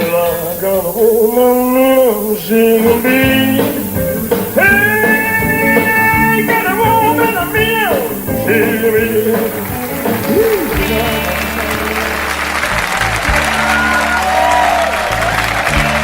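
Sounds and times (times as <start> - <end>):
band music: 0.0 - 16.0
guitar sliding melody notes: 2.5 - 16.0.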